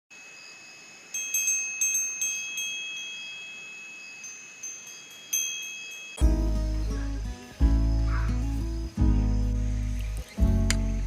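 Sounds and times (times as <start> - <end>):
high bell-like chimes: 0.2 - 6.4.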